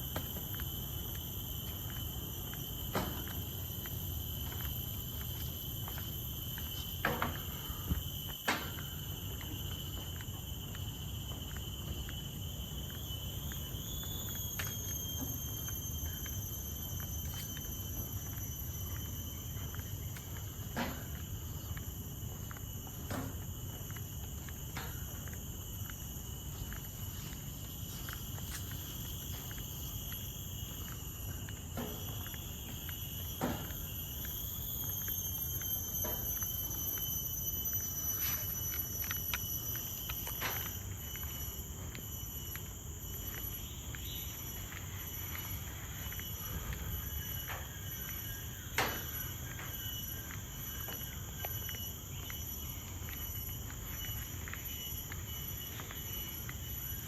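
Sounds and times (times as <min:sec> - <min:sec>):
insects buzzing: 0:00.0 - 0:57.0.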